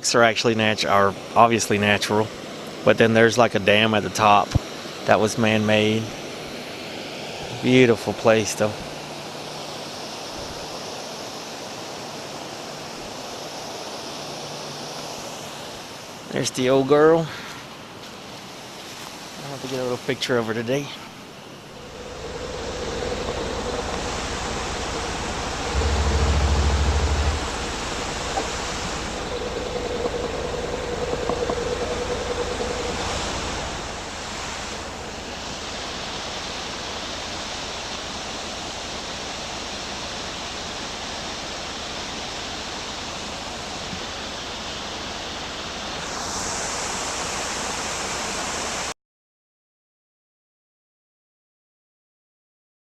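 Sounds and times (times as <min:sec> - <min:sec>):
brief low rumble: 0:21.7 - 0:33.0.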